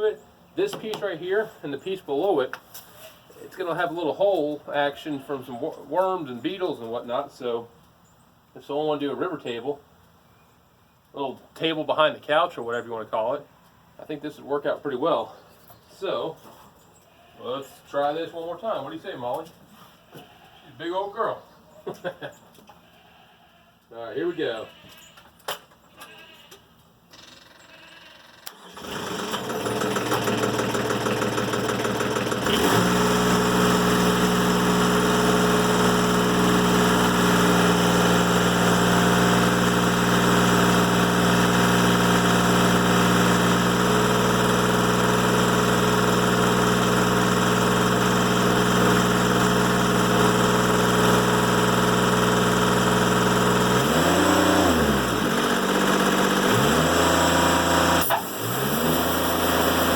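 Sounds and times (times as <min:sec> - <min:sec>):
sawmill engine running: 0:28.5 - 0:59.9.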